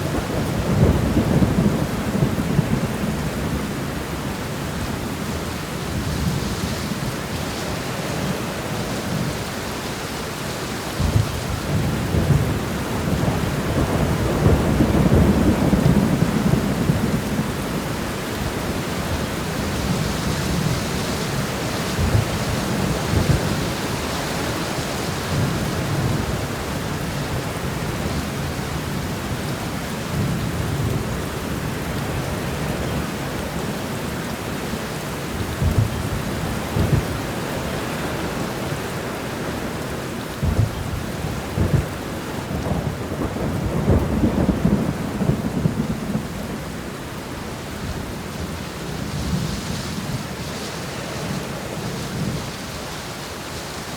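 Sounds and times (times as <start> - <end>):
steady rain shower: 0.0 - 53.9
low thumps or rumbles: 40.4 - 41.9.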